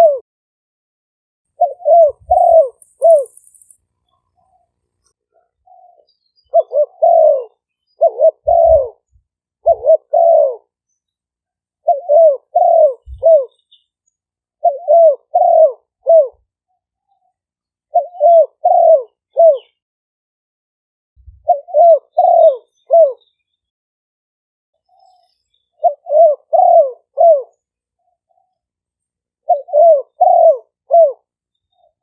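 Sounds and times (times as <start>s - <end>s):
dove cooing: 0.0s - 0.2s, 1.6s - 3.8s, 5.3s - 10.8s, 11.8s - 13.6s, 14.6s - 16.5s, 17.9s - 19.7s, 21.3s - 23.2s, 25.8s - 27.6s, 29.4s - 31.9s.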